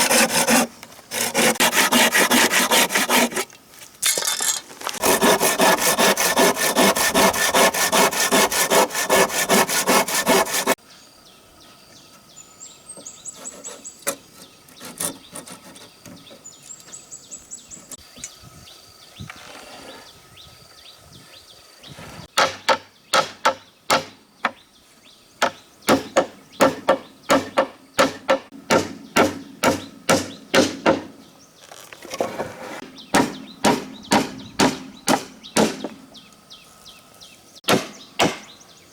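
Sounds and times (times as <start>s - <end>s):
hand saw cutting wood: 0.0s - 3.5s, 4.8s - 10.8s, 13.4s - 16.0s.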